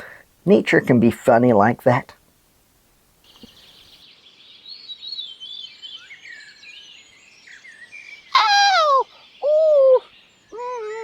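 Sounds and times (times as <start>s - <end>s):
birds chirping: 3.2s - 11.0s.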